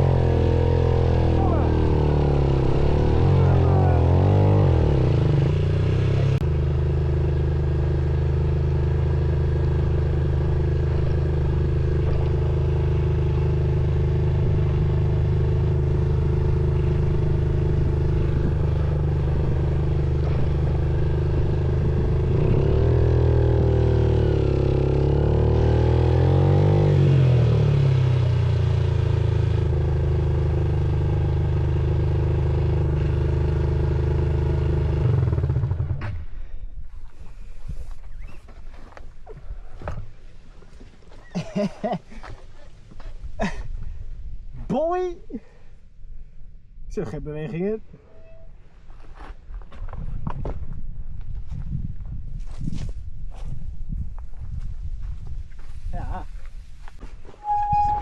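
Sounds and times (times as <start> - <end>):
motorcycle engine running: 0.0 - 36.2.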